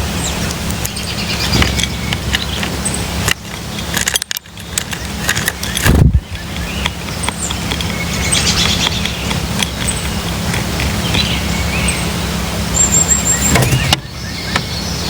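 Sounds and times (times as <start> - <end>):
birds chirping: 0.0 - 15.0
steady low hum: 0.0 - 15.0
thin bird whistle: 11.0 - 15.0.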